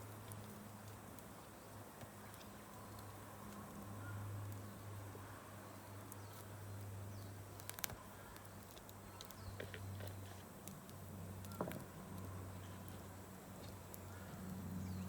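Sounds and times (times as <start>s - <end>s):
campfire crackling and popping: 0.0s - 5.0s, 6.0s - 14.8s.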